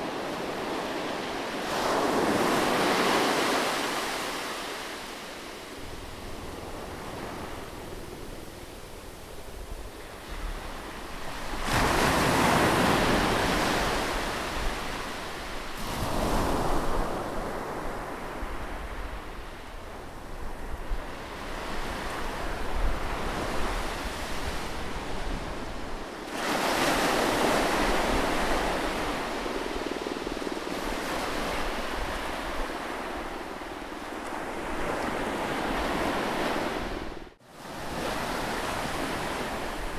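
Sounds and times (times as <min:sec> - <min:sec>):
sea waves crashing on shore: 0:00.0 - 0:18.4.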